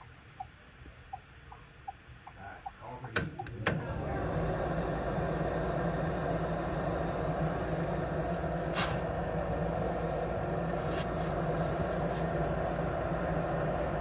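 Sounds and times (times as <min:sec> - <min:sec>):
furnace motor humming: 0:02.4 - 0:14.0
relay clicking: 0:03.0 - 0:04.0.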